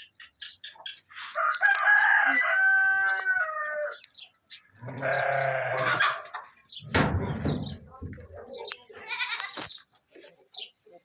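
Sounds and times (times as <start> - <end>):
rooster crowing: 1.4 - 4.0
goat bleating: 4.8 - 6.2, 8.9 - 9.6.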